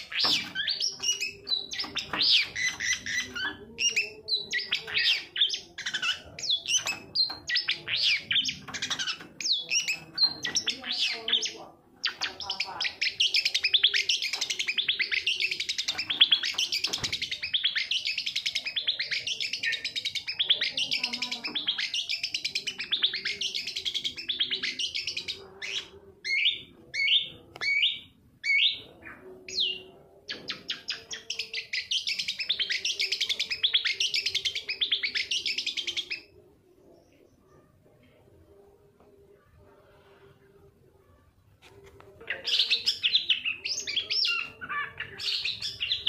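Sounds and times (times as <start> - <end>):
shrike singing fast chatter: 0.0 - 27.9.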